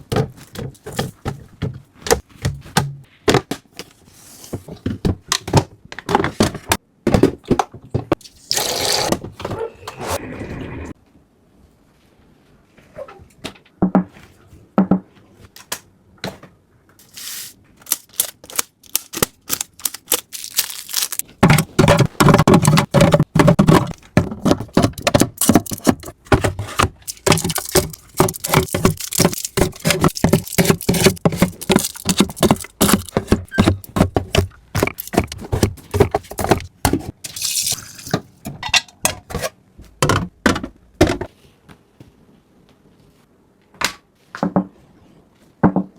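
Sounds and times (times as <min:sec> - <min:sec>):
packaging clicking and rattling: 0:17.8 - 0:36.7.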